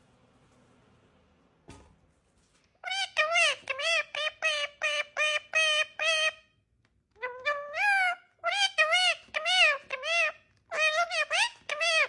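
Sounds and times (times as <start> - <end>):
parrot chattering: 2.8 - 6.5, 7.2 - 12.0.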